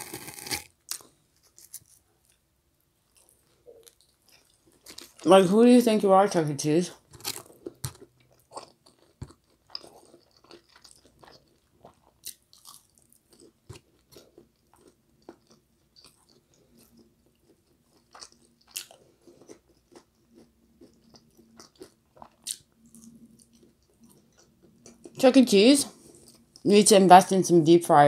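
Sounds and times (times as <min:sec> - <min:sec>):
person chewing with wet smacks: 0:03.1 - 0:05.3, 0:07.0 - 0:25.2.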